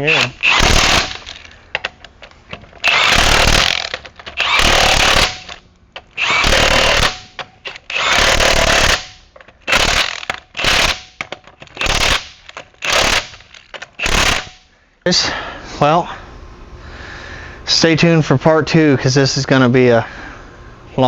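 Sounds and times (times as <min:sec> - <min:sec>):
impact wrench hammering: 0:00.0 - 0:01.9, 0:02.5 - 0:14.6.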